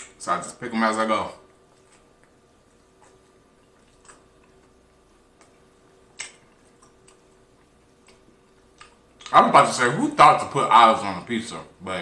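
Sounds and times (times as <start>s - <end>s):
faint steady hum: 0.0s - 12.0s
wet mouth clicks: 1.4s - 9.4s
chewing food: 1.4s - 9.8s.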